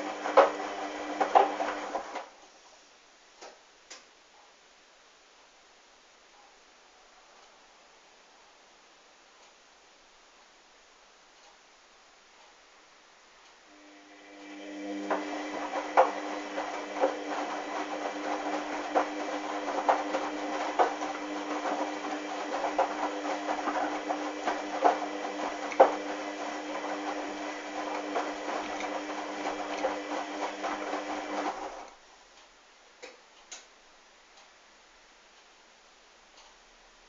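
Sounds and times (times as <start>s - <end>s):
washing machine motor hum: 0.0s - 2.3s, 13.7s - 31.9s.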